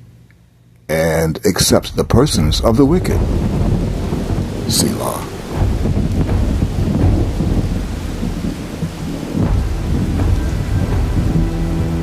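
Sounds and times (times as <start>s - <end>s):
thunder rumbling: 1.6s - 12.0s
steady rain: 1.8s - 12.0s.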